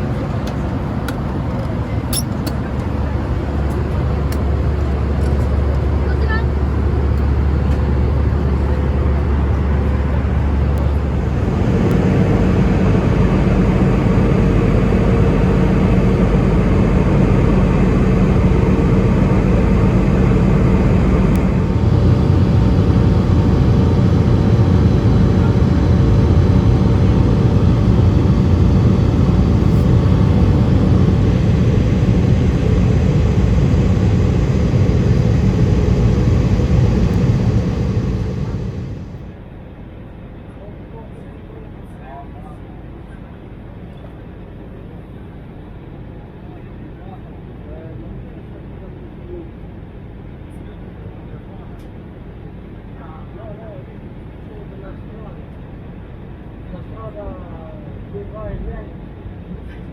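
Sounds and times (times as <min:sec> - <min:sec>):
airliner cabin engine rumble: 0:00.0 - 0:39.4.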